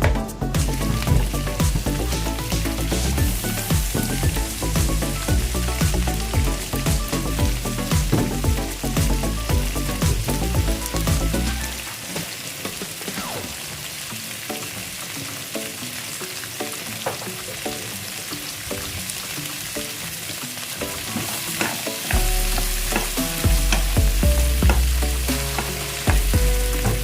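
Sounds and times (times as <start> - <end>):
background music with heavy bass: 0.0 - 11.9, 20.8 - 27.0
food sizzling in a pan: 0.0 - 27.0.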